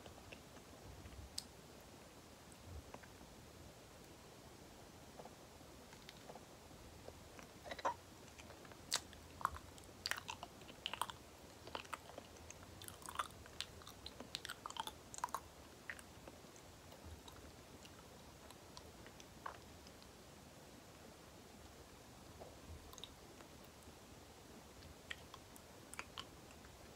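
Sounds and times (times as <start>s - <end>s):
chewing soft banana: 5.1s - 20.2s, 21.6s - 24.0s, 24.6s - 26.9s.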